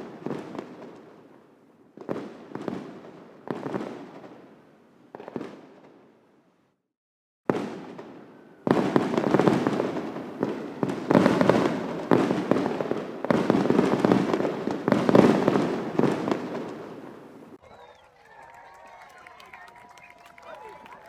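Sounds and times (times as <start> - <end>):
fireworks bangs and crackling: 0.0 - 6.2, 7.5 - 17.9.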